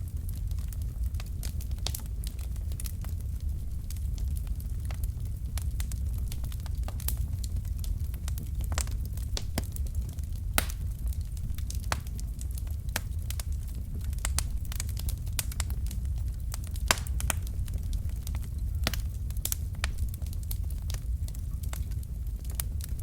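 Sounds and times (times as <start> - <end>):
fire crackling and popping: 0.0 - 23.0.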